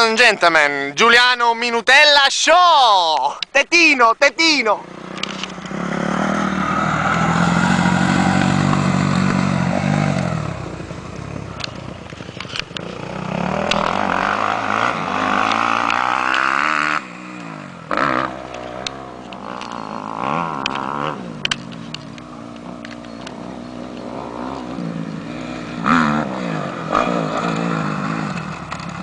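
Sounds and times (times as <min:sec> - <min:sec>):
motorcycle engine revving: 0:04.8 - 0:29.0.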